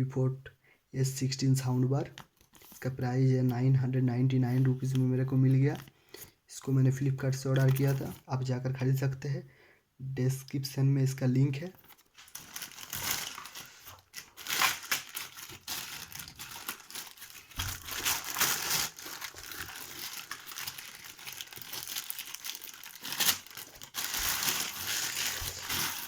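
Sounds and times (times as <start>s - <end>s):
packaging crinkling and rustling: 2.0s - 5.9s, 7.3s - 8.3s, 11.6s - 26.0s.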